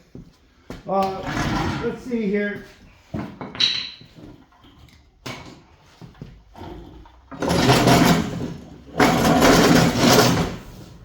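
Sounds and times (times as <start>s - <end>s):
power tool rattling buzz: 7.3s - 10.7s.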